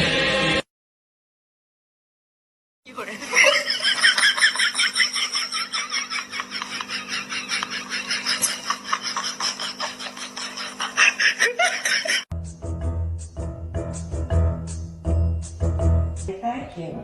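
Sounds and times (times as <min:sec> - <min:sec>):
rapid laughter: 0:03.1 - 0:12.3.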